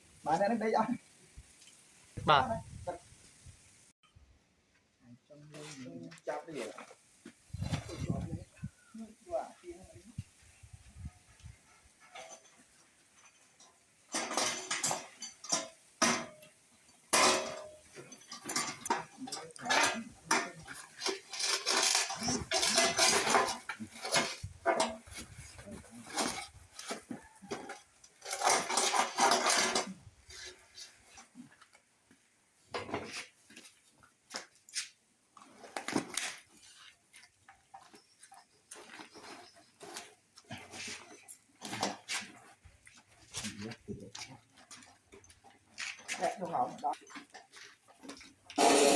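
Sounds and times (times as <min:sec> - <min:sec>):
metal objects clattering: 0:11.7 - 0:31.4, 0:45.0 - 0:48.9.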